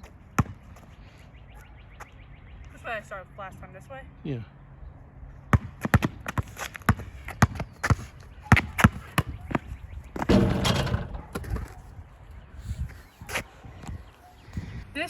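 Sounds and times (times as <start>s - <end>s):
basketball bouncing: 0.4s - 0.6s, 5.5s - 11.7s.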